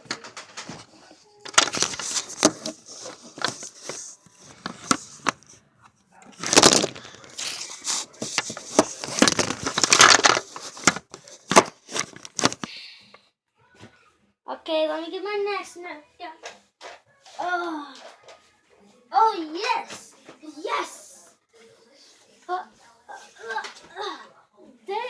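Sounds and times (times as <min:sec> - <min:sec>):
rustling and crinkling: 0:00.0 - 0:12.7.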